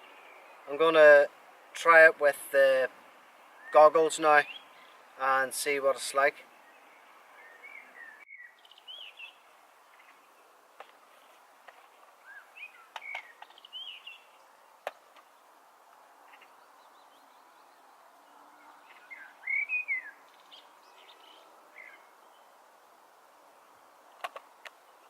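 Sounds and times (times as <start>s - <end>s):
faint background noise: 0.0s - 25.0s
birds chirping: 2.9s - 25.0s
sharp clicks: 24.2s - 24.8s.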